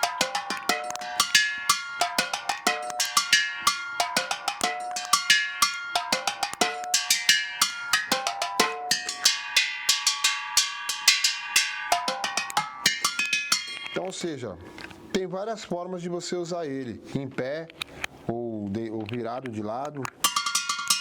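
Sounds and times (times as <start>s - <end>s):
drumsticks hitting steel cylinder: 0.0s - 14.2s, 20.2s - 21.0s.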